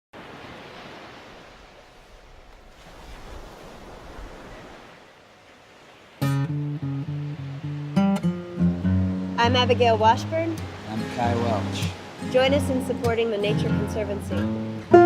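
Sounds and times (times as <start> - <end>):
plucked string instrument: 6.2 - 15.0.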